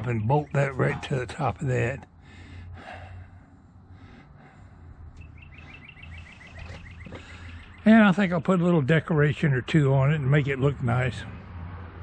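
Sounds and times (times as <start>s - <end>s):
low background rumble: 0.0s - 8.1s
bird trilling: 5.2s - 8.0s.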